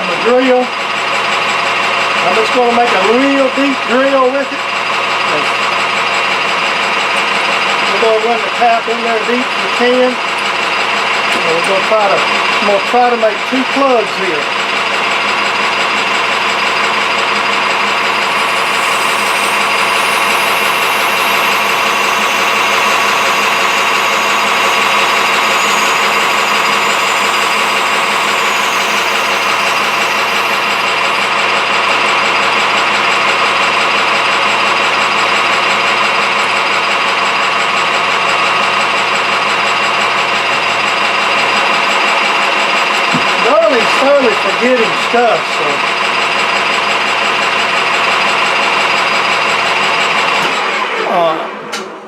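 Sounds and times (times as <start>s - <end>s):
metal lathe motor hum and whine: 13.4s - 41.1s.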